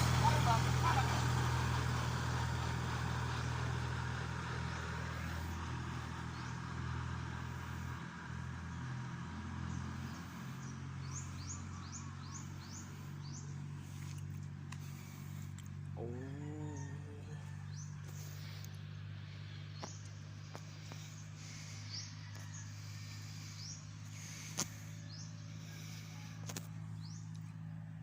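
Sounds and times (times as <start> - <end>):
tractor diesel engine running: 0.0 - 28.0
bird chirping: 9.7 - 15.4, 16.0 - 27.8.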